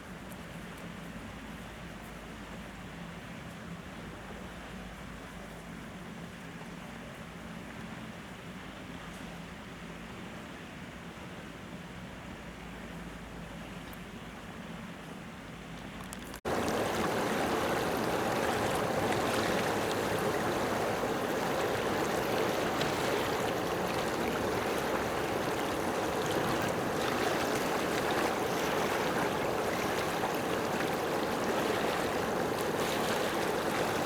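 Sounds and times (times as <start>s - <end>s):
faint hum: 16.5s - 34.0s.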